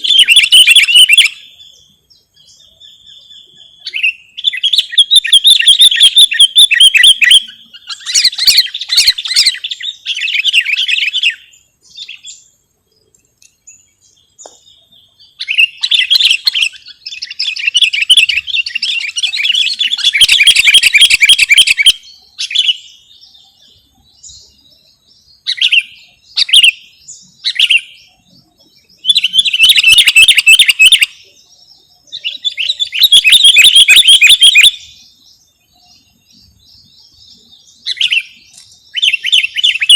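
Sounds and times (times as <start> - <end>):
bulbul rapid chirping: 0.0 - 1.4, 3.8 - 11.2, 15.4 - 22.0, 29.0 - 31.1, 32.2 - 34.8.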